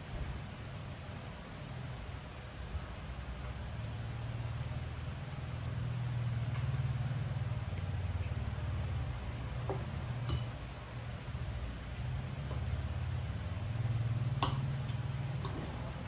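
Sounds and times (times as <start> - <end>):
steady low hum: 0.0 - 16.0
cutlery clicking on plate: 10.2 - 10.5.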